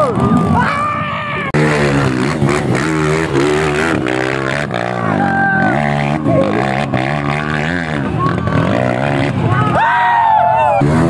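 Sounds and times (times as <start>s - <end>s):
dirt bike engine revving: 1.5s - 11.0s.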